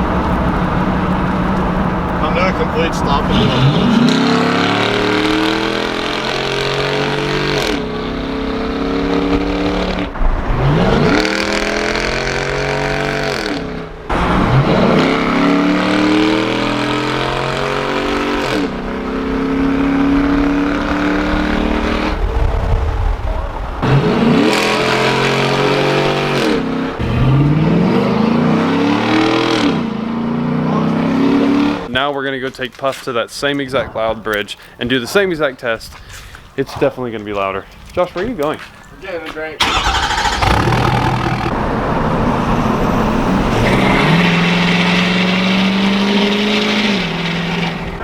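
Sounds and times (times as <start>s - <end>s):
truck engine accelerating hard: 0.0s - 31.9s, 39.6s - 48.0s.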